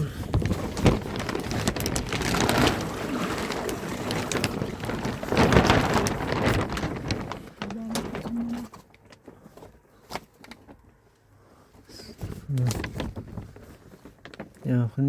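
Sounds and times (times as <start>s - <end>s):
water splashing and running: 0.4s - 8.2s.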